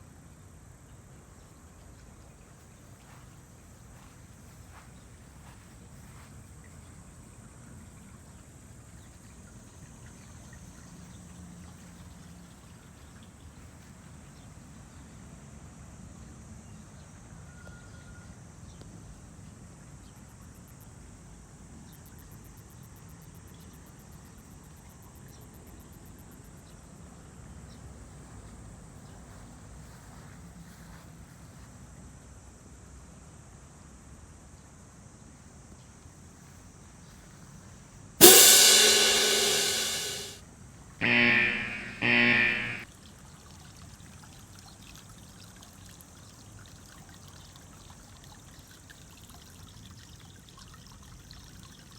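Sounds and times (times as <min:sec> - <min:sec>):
high-pitched whine: 0:38.2 - 0:40.4, 0:41.0 - 0:42.8.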